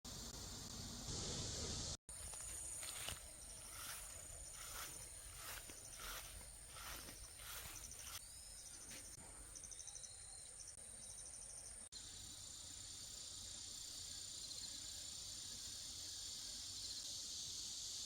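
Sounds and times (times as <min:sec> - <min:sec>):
crickets chirping: 0:00.1 - 0:18.0
regular pulsing insect call: 0:00.1 - 0:18.0.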